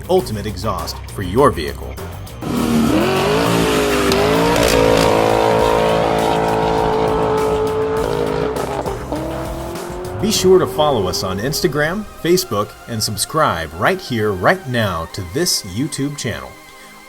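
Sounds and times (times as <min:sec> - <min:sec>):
car engine revving: 0:02.4 - 0:14.6.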